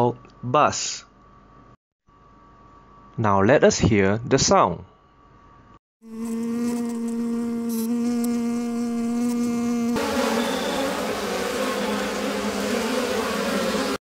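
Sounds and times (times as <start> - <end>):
bees buzzing: 6.0 - 14.0.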